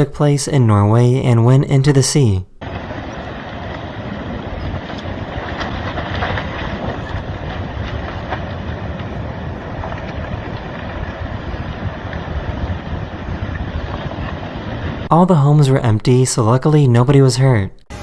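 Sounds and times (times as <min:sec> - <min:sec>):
landslide rumbling: 0:00.0 - 0:17.7
faint crackles: 0:02.6 - 0:15.1
wind noise on microphone: 0:02.6 - 0:15.1.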